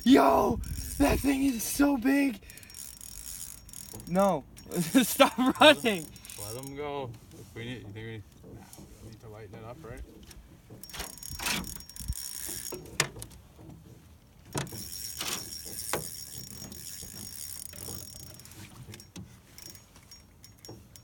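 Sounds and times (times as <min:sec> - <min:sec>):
fishing reel drag buzzing: 0:00.4 - 0:06.8, 0:10.8 - 0:13.0, 0:14.6 - 0:20.8
rod and reel knocks: 0:02.5 - 0:21.0.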